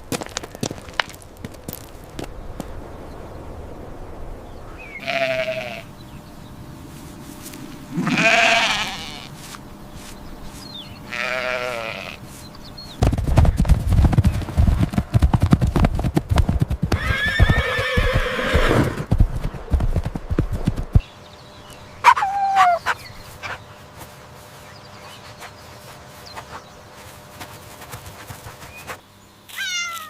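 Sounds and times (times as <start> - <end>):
horse hooves galloping: 0.0 - 2.8, 12.8 - 21.1, 25.4 - 29.0
horse whinnying: 7.9 - 9.2, 16.9 - 19.1
short falling animal call: 22.0 - 23.0, 29.5 - 30.0.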